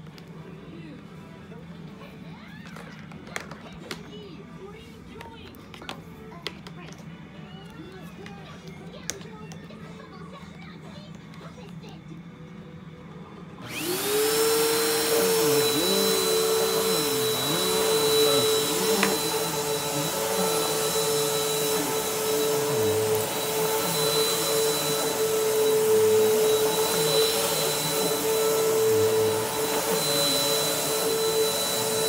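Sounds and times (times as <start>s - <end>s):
vacuum cleaner motor whine: 13.6s - 32.0s.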